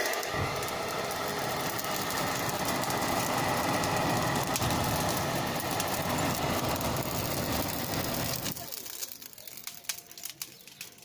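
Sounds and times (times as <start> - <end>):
hair dryer blowing air: 0.0 - 8.5
coals crackling: 0.0 - 11.0.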